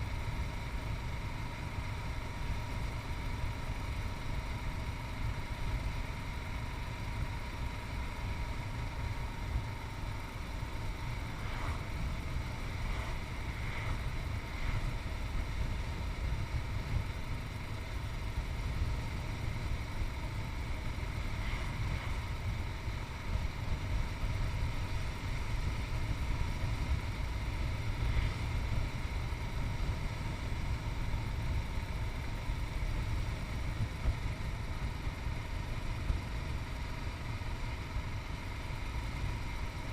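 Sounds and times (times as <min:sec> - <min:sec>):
wind rumble on microphone: 0:10.6 - 0:35.0.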